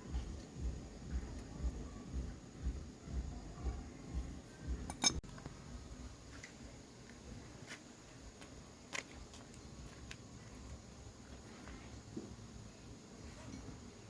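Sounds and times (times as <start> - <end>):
metal parts clinking: 4.9 - 5.2.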